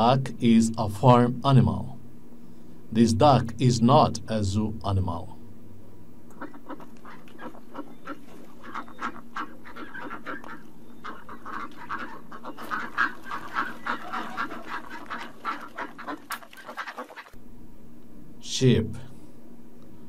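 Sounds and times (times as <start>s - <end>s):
ducks quacking: 6.3s - 17.4s.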